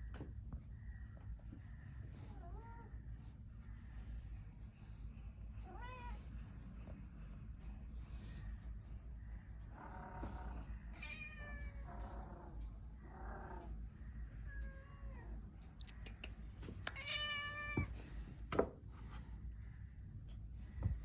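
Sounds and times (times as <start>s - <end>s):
steady low hum: 0.0s - 21.0s
cat meowing: 10.4s - 12.4s, 16.9s - 17.9s.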